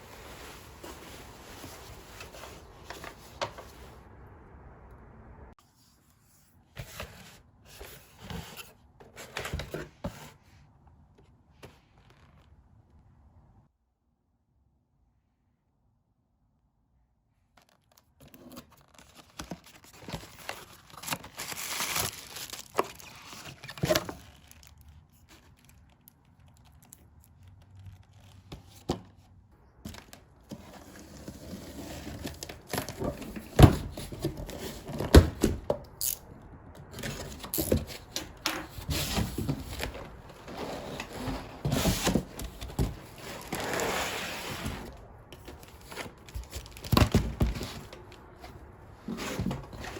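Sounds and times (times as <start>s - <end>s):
packaging tearing and crinkling: 17.6s - 28.5s.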